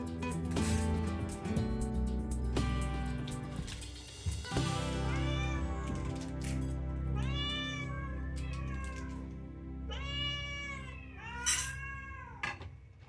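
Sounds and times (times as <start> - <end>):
background music: 0.0 - 11.8
cats meowing: 4.8 - 12.8.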